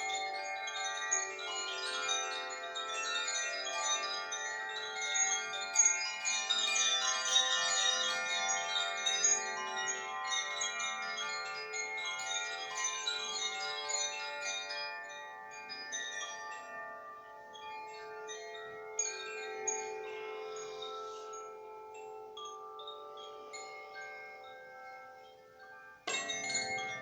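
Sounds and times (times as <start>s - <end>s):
chimes ringing: 12.2s - 27.0s.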